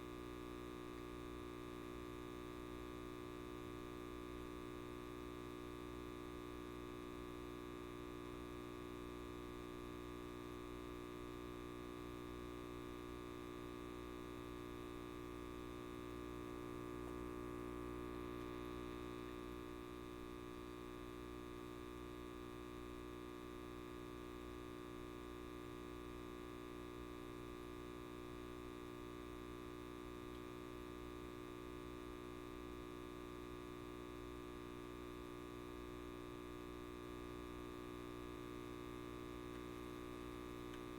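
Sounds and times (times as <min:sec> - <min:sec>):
light bulb mains buzz: 0:00.0 - 0:40.9.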